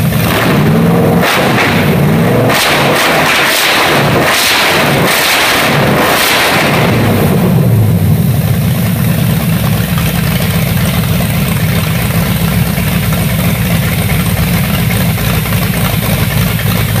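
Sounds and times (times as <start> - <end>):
engine idling through open headers: 0.0 - 2.4, 6.8 - 17.0.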